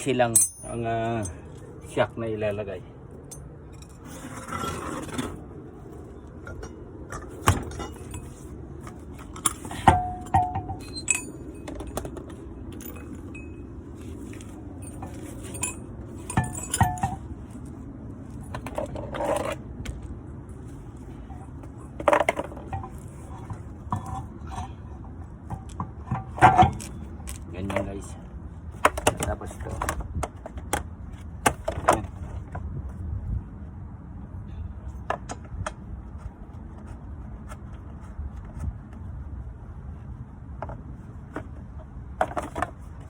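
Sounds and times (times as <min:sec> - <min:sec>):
metal tools clinking: 0:00.0 - 0:01.5, 0:06.5 - 0:08.5, 0:09.2 - 0:17.3
low background hum: 0:00.0 - 0:43.0.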